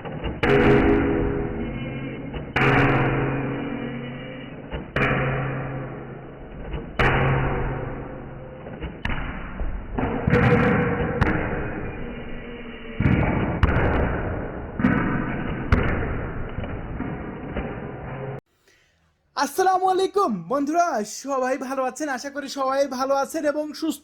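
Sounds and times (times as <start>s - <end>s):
heavy thuds with ringing: 0.0s - 18.4s.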